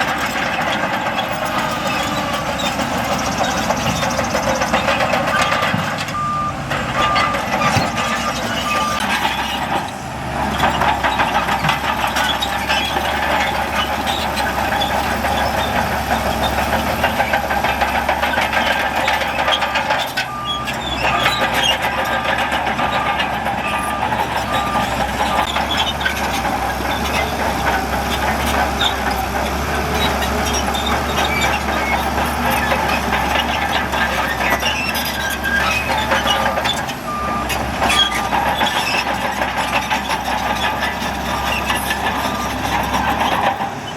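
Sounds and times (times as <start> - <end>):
diesel earthmoving machinery: 0.0 - 43.9
reversing alarm beeping: 5.3 - 9.2, 22.8 - 25.6, 36.5 - 38.4.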